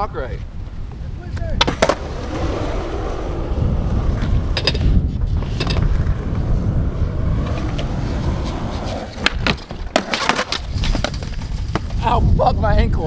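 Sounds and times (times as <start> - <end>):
wind buffeting microphone: 0.0 - 13.0
skateboard clacks: 1.4 - 12.0
skateboard clatter and knocks: 1.6 - 12.0.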